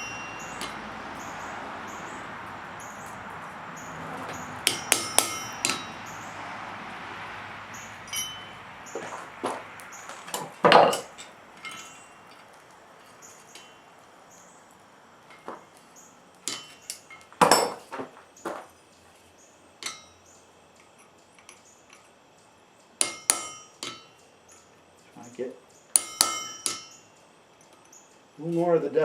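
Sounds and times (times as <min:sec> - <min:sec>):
hammer blows on metal anvil: 0:00.0 - 0:03.2, 0:04.2 - 0:06.4, 0:07.7 - 0:12.2, 0:23.0 - 0:24.2, 0:26.0 - 0:27.0.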